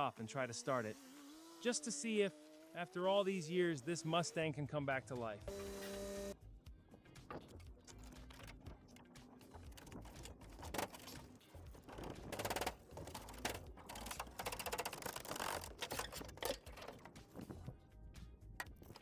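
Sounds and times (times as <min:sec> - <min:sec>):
rapid irregular clicking: 0:07.2 - 0:17.5.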